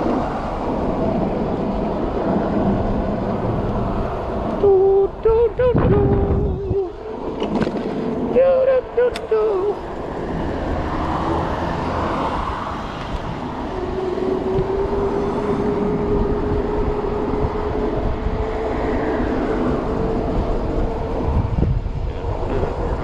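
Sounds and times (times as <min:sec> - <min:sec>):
road noise: 0:00.0 - 0:23.0
steady whine rising in pitch: 0:00.0 - 0:23.0
wind rushing over microphone: 0:00.0 - 0:23.0.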